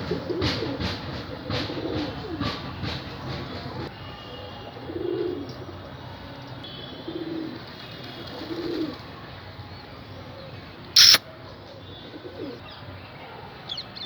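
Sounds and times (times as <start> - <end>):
pigeon cooing: 4.9 - 5.6, 7.1 - 7.6, 8.3 - 9.0, 12.1 - 12.6.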